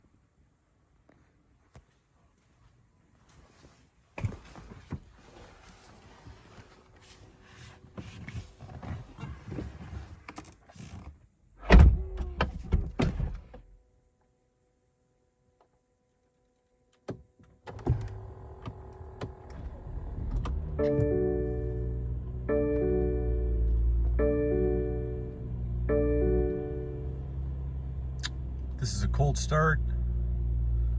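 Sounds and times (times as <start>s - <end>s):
car engine cranking and starting: 17.7s - 30.9s
music: 22.5s - 27.0s.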